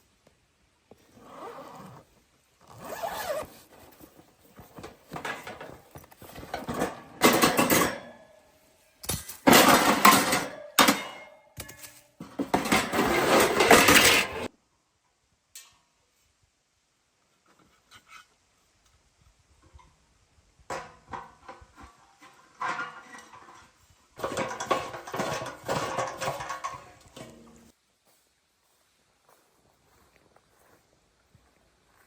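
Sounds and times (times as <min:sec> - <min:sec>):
cookware clattering and clinking: 0:05.2 - 0:08.2, 0:09.4 - 0:14.5, 0:22.6 - 0:23.6, 0:24.2 - 0:27.6.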